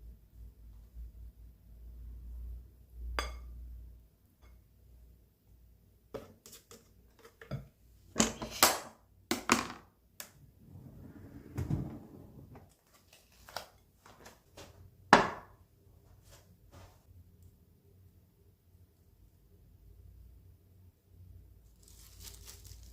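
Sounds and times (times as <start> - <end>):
soft rustle: 21.6 - 22.9.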